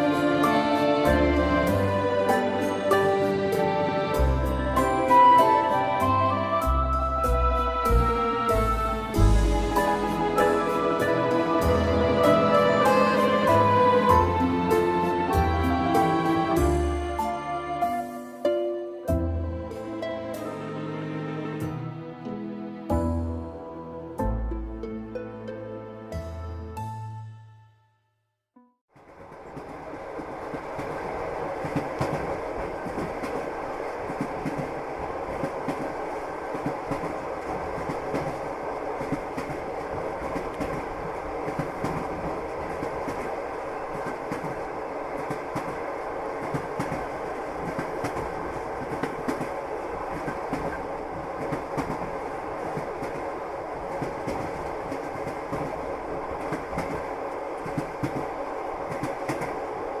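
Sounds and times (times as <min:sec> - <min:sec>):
train wheels clattering over rail joints: 0:29.0 - 1:00.0.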